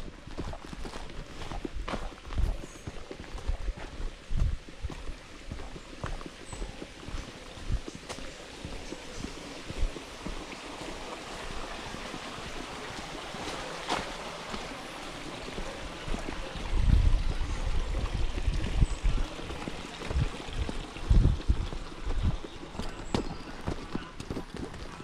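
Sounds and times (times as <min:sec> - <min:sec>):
footsteps on a trail: 0:00.0 - 0:25.0
heavy low thumps: 0:20.1 - 0:22.4.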